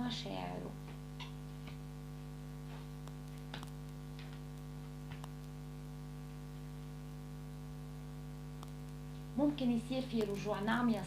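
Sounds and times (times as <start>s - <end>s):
electrical mains hum: 0.0s - 11.0s
faint clicks and rustles: 2.6s - 5.6s.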